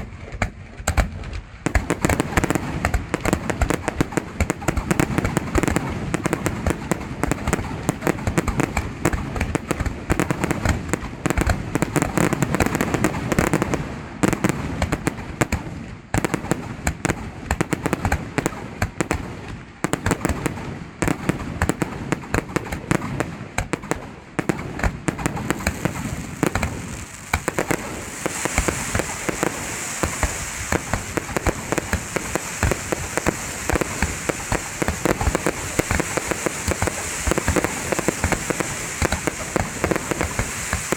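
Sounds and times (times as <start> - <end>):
fireworks bangs and crackles: 0.0 - 40.9
high crackling hiss: 24.8 - 40.9.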